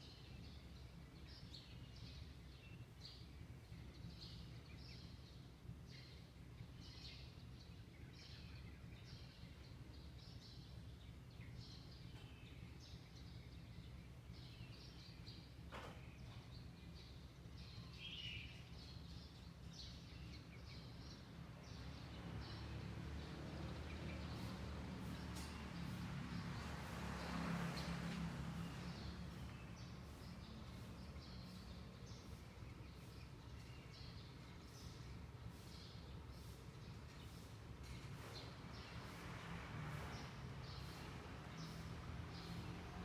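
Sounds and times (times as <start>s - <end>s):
small birds chirping: 0.0s - 43.0s
low neighbourhood rumble: 11.6s - 43.0s.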